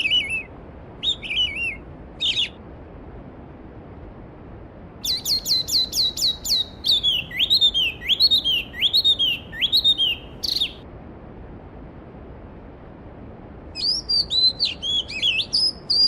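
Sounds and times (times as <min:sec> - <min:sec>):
songbird singing: 0:00.0 - 0:02.6, 0:05.0 - 0:10.8, 0:13.8 - 0:16.0.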